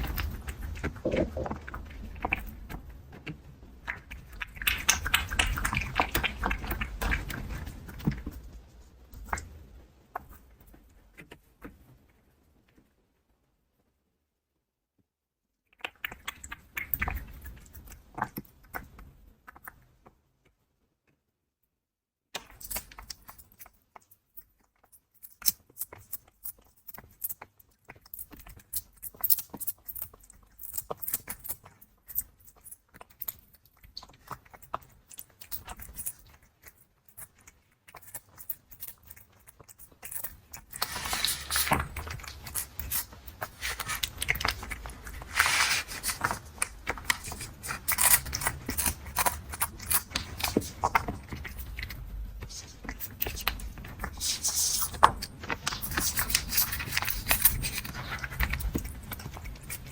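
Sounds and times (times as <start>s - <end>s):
cat crunching dry food: 25.2s - 59.9s.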